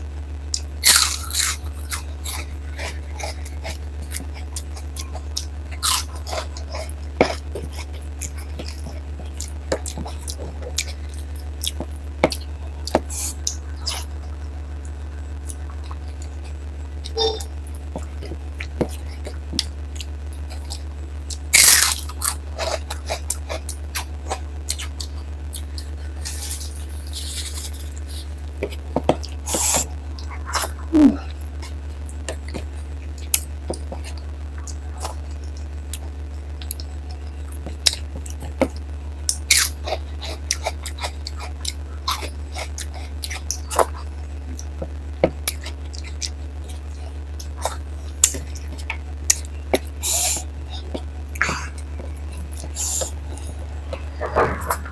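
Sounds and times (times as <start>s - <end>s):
steady low hum: 0.0s - 54.9s
crunchy bites: 0.5s - 14.1s, 18.0s - 31.4s
person chewing and smacking: 0.5s - 17.2s, 17.8s - 54.9s.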